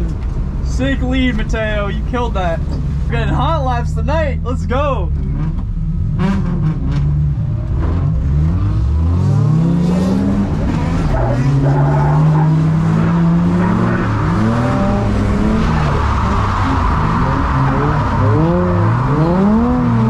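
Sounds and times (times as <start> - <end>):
car engine revving hard: 5.2 - 20.0.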